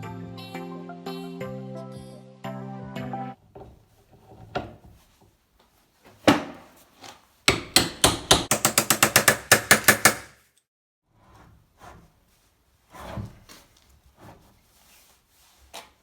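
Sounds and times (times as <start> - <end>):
sharp metal knocks: 7.5 - 10.4.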